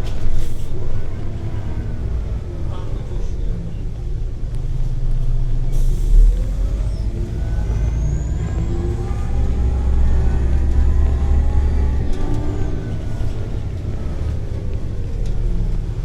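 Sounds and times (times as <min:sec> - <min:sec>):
bus engine whine accelerating: 0:00.0 - 0:16.0
air brakes hissing: 0:05.8 - 0:07.1.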